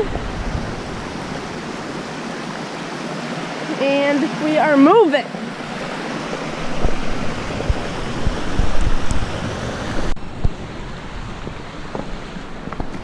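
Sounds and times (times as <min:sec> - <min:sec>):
wind buffeting microphone: 0:00.0 - 0:03.6, 0:04.2 - 0:13.0
creek rushing: 0:00.0 - 0:13.0.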